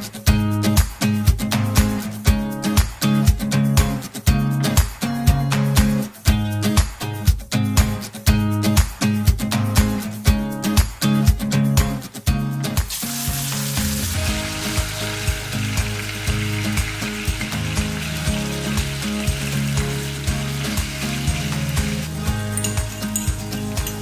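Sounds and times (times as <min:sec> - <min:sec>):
background music with steady beat: 0:00.0 - 0:24.0
meat sizzling in hot oil: 0:12.8 - 0:24.0.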